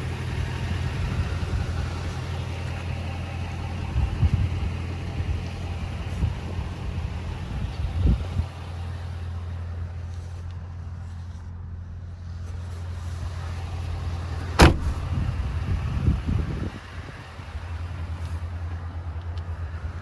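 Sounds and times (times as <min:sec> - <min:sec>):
engine idling: 0:00.0 - 0:20.0
soft thumps: 0:14.6 - 0:15.3.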